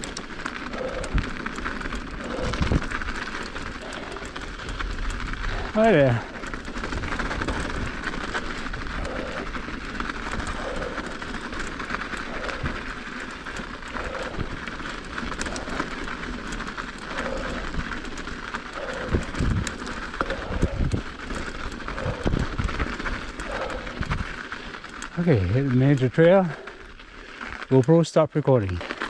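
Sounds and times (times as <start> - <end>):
bike tyres rumbling on snow: 0.0 - 29.0
wind on microphone: 18.8 - 21.1.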